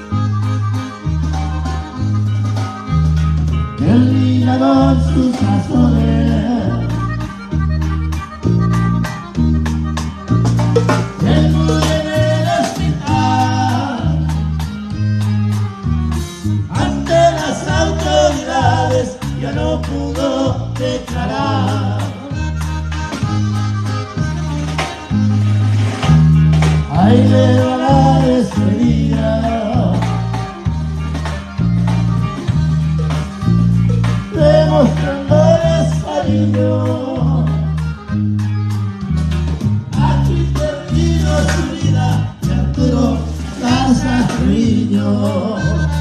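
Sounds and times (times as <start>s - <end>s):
accordion: 0.0s - 46.0s
bajo sexto guitar: 0.0s - 46.0s
band playing: 0.0s - 46.0s
bass: 0.0s - 46.0s
drums: 0.0s - 46.0s
sliding melodic fill: 0.0s - 46.0s
person singing: 3.8s - 7.3s, 11.1s - 14.4s, 16.7s - 23.1s, 26.9s - 30.5s, 34.3s - 38.0s, 39.9s - 46.0s.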